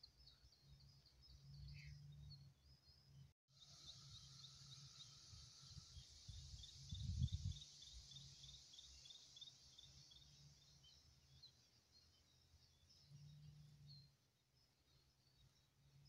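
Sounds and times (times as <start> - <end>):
high hiss of insects: 3.5 - 11.2.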